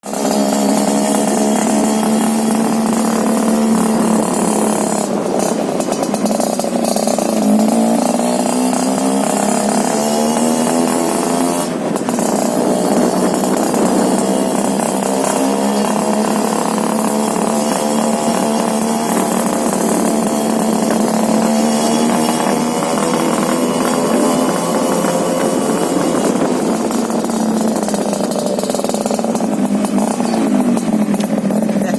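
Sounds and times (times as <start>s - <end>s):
two-stroke engine revving: 0.0s - 31.9s.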